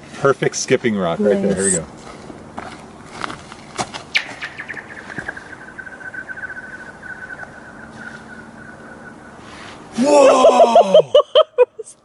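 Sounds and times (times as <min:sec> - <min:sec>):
chirping pulses of skidding rock: 0:04.1 - 0:09.9.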